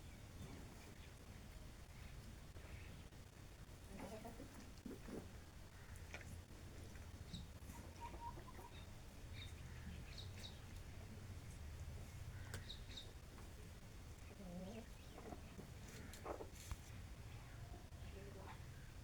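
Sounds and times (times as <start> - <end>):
chickens peeping and clucking: 3.8 - 17.0.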